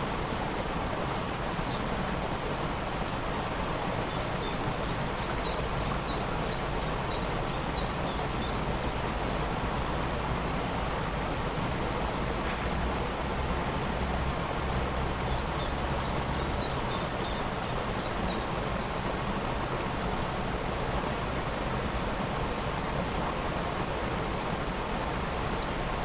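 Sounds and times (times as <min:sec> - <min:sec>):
waterfall rushing: 0:00.0 - 0:26.0
bird chirping: 0:04.4 - 0:08.9.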